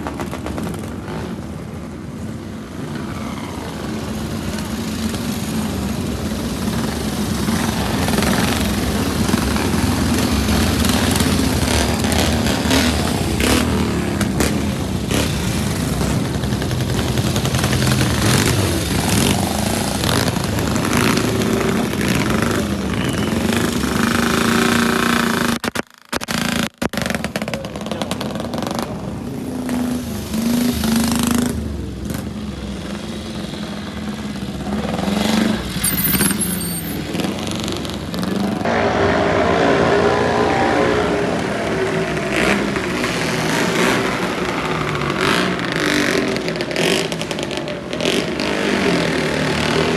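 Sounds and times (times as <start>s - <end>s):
racing motorcycle engines revving: 0.0s - 25.6s, 37.0s - 49.9s.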